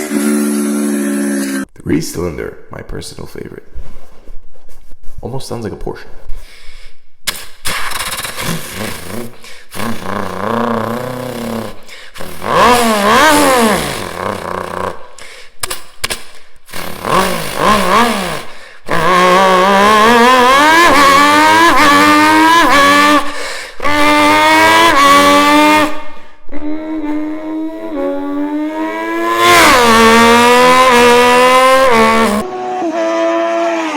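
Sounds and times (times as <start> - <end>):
man imitating motorcycle engine: 8.2 - 15.2, 16.7 - 33.8.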